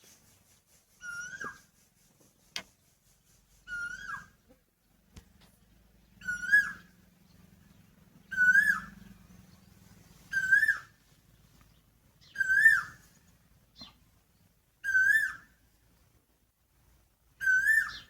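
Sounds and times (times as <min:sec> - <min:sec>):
koel calling whistled notes: 0:06.2 - 0:06.8, 0:08.3 - 0:09.0, 0:10.3 - 0:10.9, 0:12.3 - 0:13.0, 0:14.8 - 0:15.5, 0:17.4 - 0:18.0.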